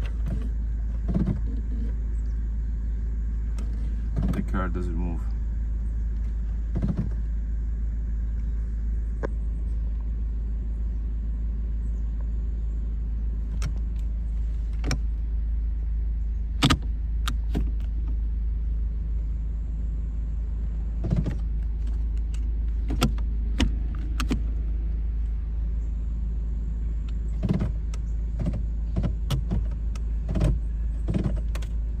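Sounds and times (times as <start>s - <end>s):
sharp clicks and knocks: 0.0s - 1.6s, 3.5s - 4.5s, 6.2s - 7.2s, 21.0s - 24.5s, 27.1s - 31.8s
car engine idling: 0.0s - 32.0s.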